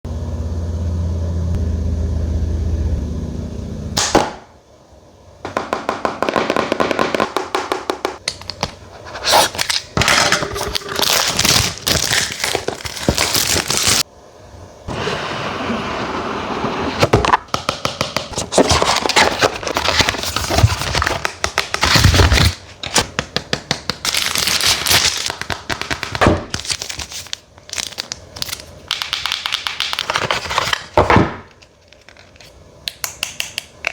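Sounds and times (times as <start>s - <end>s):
steady low hum: 0.1s - 21.5s
plastic wrap and cardboard crackling: 8.2s - 14.1s, 18.3s - 32.6s
packaging scraping and rustling: 8.8s - 14.0s, 18.3s - 23.1s, 24.0s - 28.7s, 29.8s - 32.6s.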